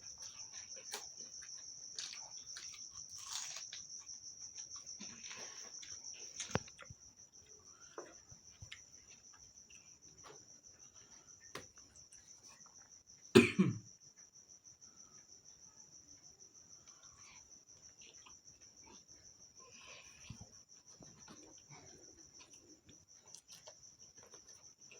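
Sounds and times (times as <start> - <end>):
insect trill: 0.0 - 24.9
chewing and mouth clicks: 0.1 - 10.3, 16.9 - 24.9
cough-like sound: 13.3 - 13.9.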